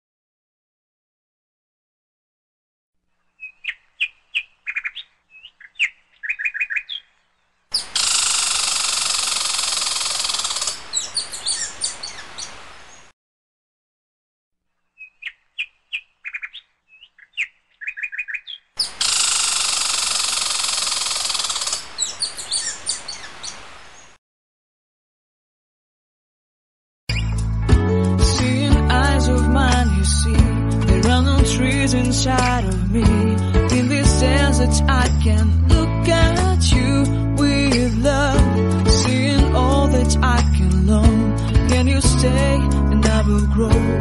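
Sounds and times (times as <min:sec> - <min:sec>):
small birds chirping: 0:03.2 - 0:13.1, 0:14.8 - 0:24.2.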